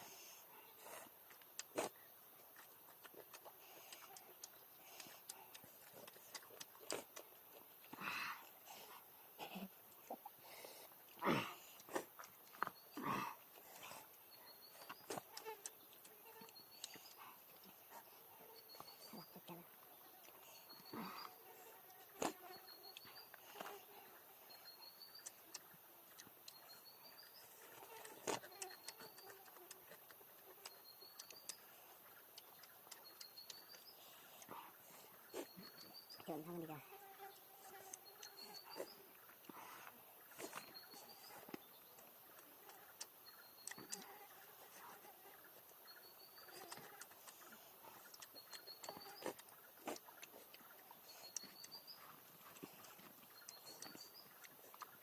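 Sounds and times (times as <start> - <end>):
faint ticks: 1.2 - 8.0.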